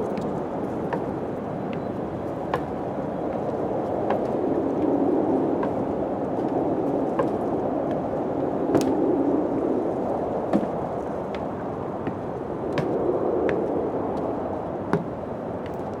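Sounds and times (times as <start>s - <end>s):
wind blowing: 0.0s - 16.0s
sharp ticks and knocks: 0.1s - 4.9s, 5.6s - 5.9s, 7.2s - 8.1s, 10.5s - 14.3s, 14.9s - 16.0s.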